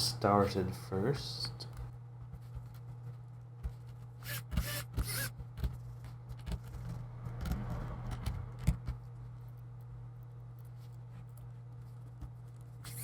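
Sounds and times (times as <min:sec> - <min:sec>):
screw clicks: 0:04.2 - 0:05.3
low hum: 0:06.4 - 0:11.9.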